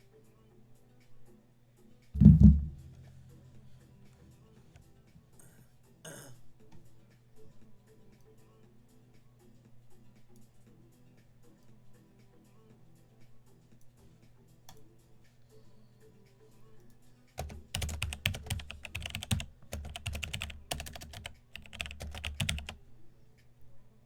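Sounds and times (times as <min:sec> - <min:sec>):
typing on computer keyboard: 0:17.4 - 0:22.8.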